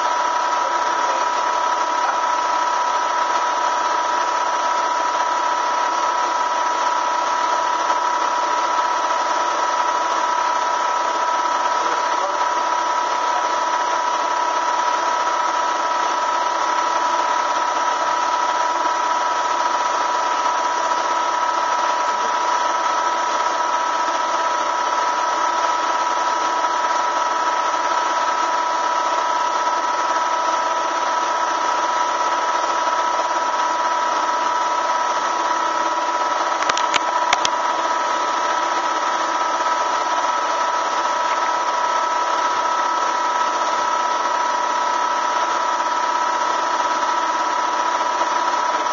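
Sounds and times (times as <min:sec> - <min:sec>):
motor running with high whine: 0:00.0 - 0:48.9.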